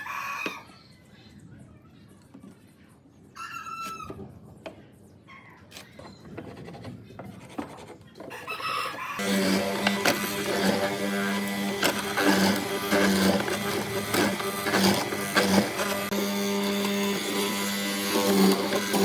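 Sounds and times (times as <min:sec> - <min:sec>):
power tool motor humming: 0:09.2 - 0:19.0.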